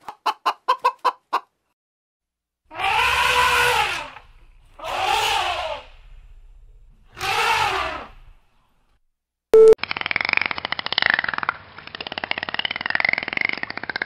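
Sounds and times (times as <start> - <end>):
elephant trumpeting: 2.7 - 6.2, 7.1 - 8.3
short loud beep: 9.6 - 9.8.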